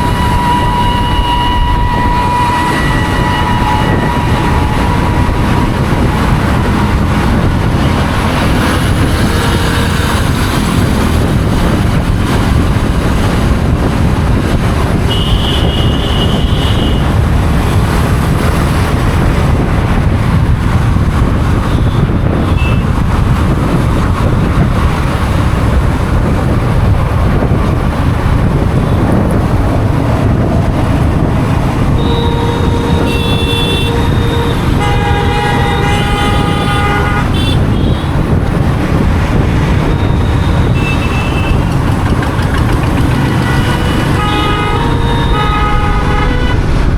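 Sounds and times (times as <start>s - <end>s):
vehicle horns honking: 0.0s - 10.6s, 14.9s - 18.3s, 21.6s - 23.0s, 30.8s - 38.4s, 39.7s - 46.8s
road and traffic noise: 0.0s - 46.9s.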